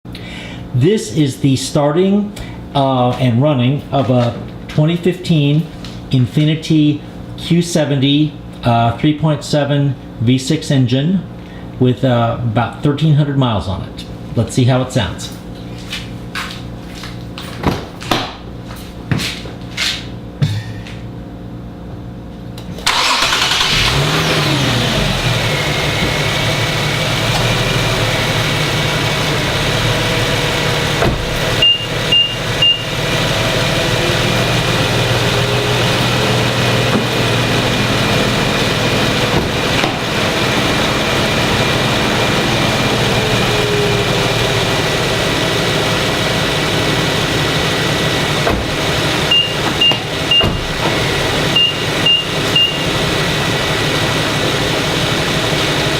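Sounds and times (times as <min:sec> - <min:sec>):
car engine idling: 0:22.8 - 0:55.9
car engine starting and revving: 0:22.8 - 0:55.9.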